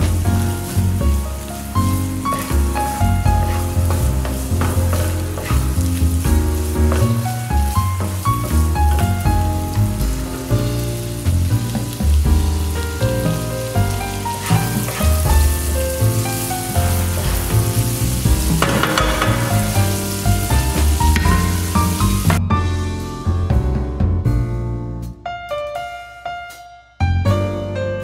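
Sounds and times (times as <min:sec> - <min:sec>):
food sizzling in a frying pan: 0:00.0 - 0:22.4
wooden spatula stirring: 0:00.0 - 0:22.4
background music: 0:00.0 - 0:28.0.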